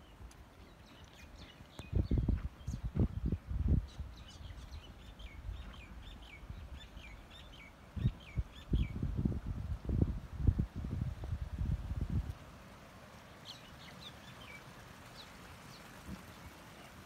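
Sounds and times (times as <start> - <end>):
horse hooves walking: 0.0 - 4.1.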